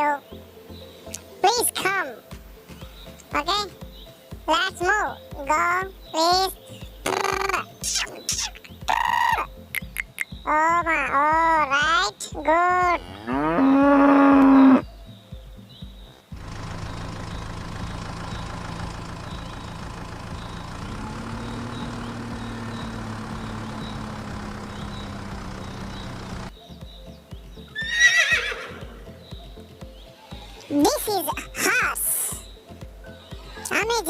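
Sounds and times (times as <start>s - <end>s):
droning hum: 16.4s - 26.5s
horse whinny: 27.8s - 29.0s.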